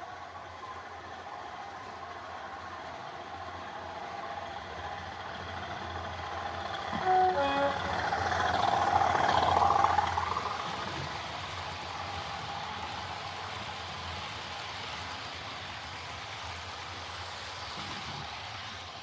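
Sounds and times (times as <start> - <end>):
two-tone locomotive horn: 6.9 - 8.5.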